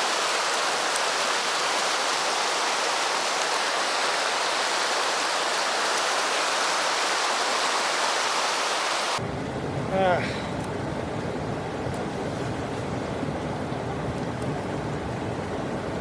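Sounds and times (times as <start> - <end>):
stream flowing over rocks: 0.0 - 9.2.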